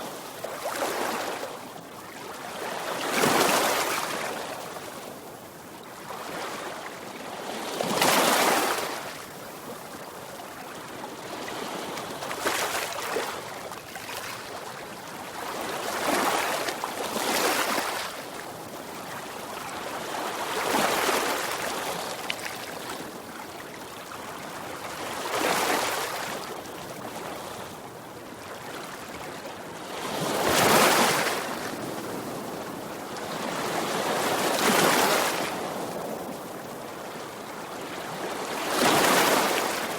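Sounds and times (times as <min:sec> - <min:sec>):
sea waves breaking on shore: 0:29.8 - 0:39.9.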